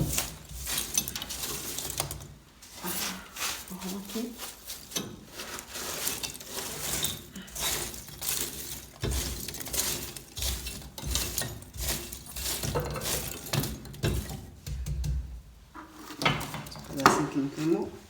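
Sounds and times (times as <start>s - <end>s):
shovel scraping ash: 0.0s - 14.4s
cinders rattling against metal: 0.0s - 15.2s, 16.0s - 17.8s.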